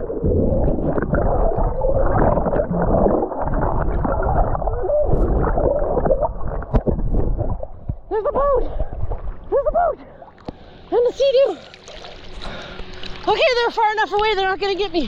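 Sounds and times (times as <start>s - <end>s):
low rumble: 0.0s - 10.2s
muffled swimming splashes: 0.0s - 15.0s
water sloshing and gurgling: 0.0s - 15.0s.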